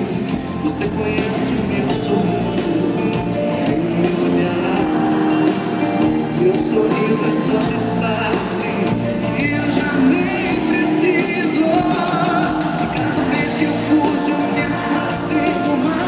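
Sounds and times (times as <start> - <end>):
live pop band playing: 0.0 - 16.0
person singing: 0.0 - 16.0.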